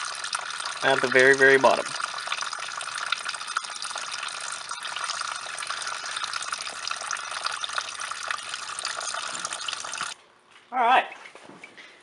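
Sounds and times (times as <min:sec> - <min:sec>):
coolant pouring from radiator drain: 0:00.0 - 0:10.2.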